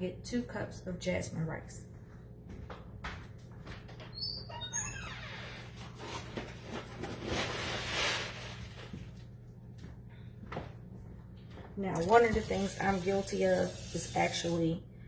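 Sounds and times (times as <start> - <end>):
short high squeaks: 4.1 - 5.7.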